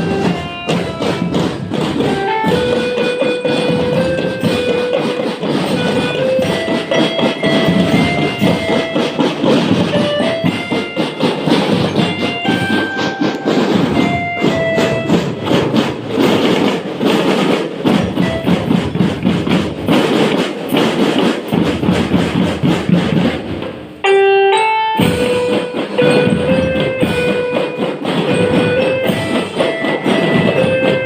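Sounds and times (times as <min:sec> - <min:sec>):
dense drumming: 0:00.0 - 0:24.0
marching band playing: 0:00.0 - 0:31.0.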